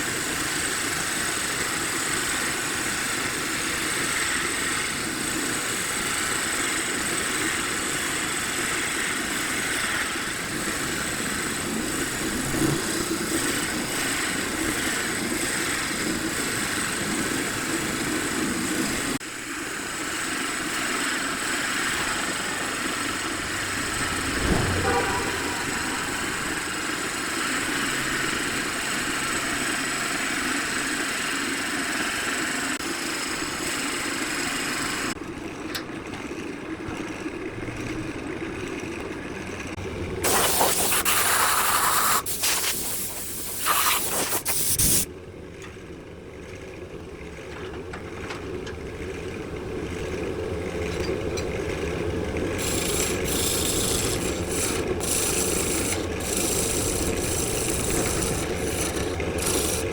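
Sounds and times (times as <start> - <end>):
woodworking machine running: 52.0 - 59.9
rubbing and rasping on wood: 52.6 - 59.9.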